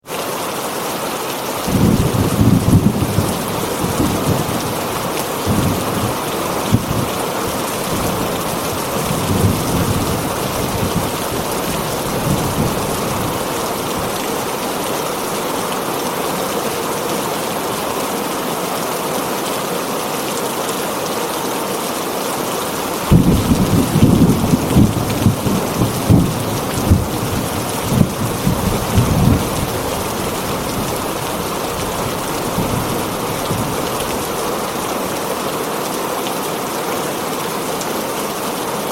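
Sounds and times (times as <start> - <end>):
heavy rain on a tin roof: 0.0 - 38.9
thunder rumbling: 1.7 - 14.8, 23.0 - 34.7.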